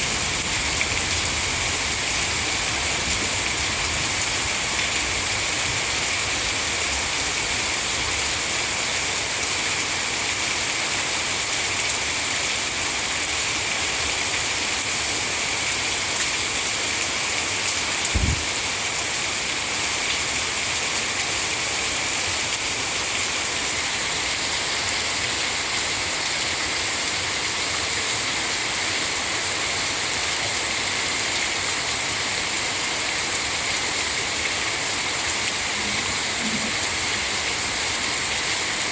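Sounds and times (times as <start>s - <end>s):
heavy rain hissing: 0.0s - 10.2s, 12.6s - 38.9s
brief low thump: 18.1s - 18.4s.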